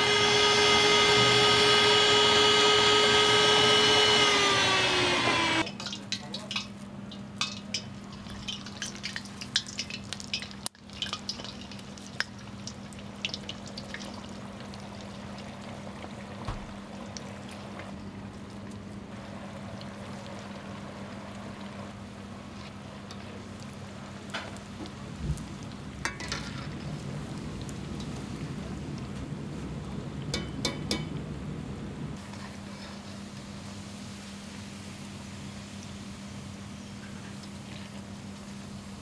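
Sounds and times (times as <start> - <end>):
food sizzling in hot oil: 0.0 - 17.8, 19.7 - 28.9
steady low hum: 17.3 - 32.2.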